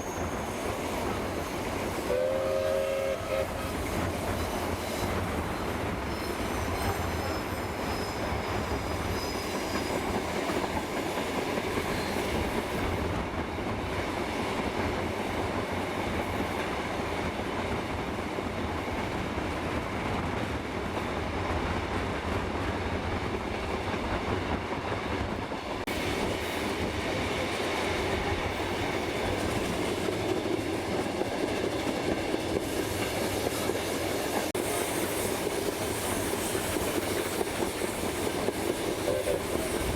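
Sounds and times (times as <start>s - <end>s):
high wheel squeal: 0.0s - 0.9s, 4.2s - 10.2s
train wheels rumbling on rails: 0.0s - 39.9s.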